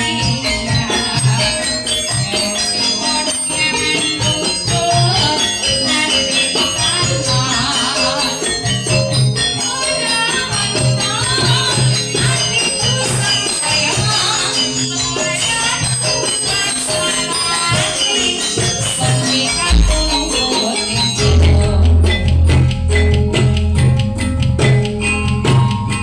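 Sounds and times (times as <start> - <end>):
person singing wavering melody: 0.0 - 24.2
jingling percussion: 0.0 - 26.0
held instrument tones: 15.8 - 26.0
low drum pulse: 19.7 - 20.4, 21.2 - 24.8.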